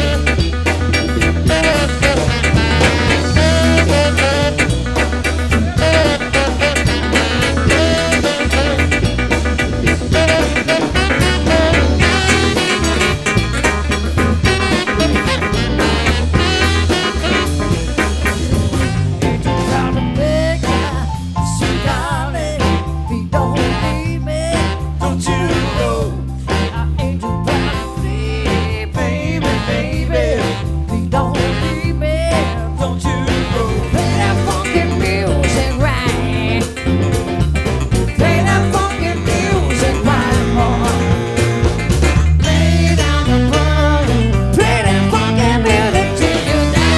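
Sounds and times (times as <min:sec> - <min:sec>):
lead melody bending in pitch: 0:00.0 - 0:19.5
bass line: 0:00.0 - 0:46.9
drum kit: 0:00.0 - 0:46.9
live band playing upbeat music: 0:00.0 - 0:46.9.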